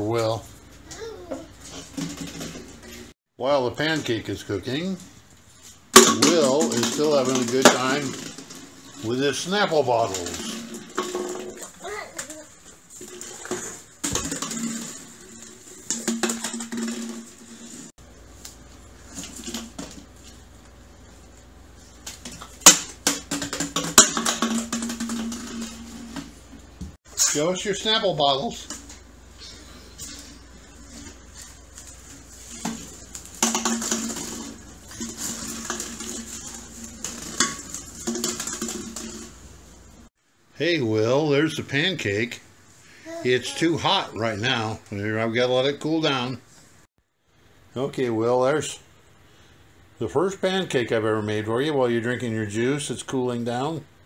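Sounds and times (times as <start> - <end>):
bottles knocking: 13.1 - 17.6, 22.2 - 26.2, 32.5 - 39.4
glass bottles clinking: 32.5 - 39.4.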